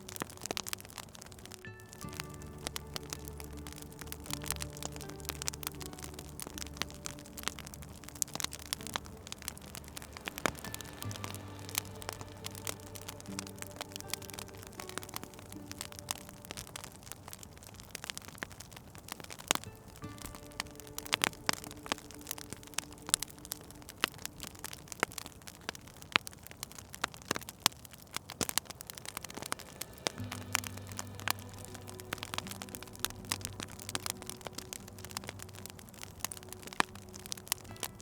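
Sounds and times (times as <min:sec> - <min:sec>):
soft low sustained tone: 0:00.0 - 0:18.2, 0:29.0 - 0:38.0
wood fire crackling: 0:00.0 - 0:38.0.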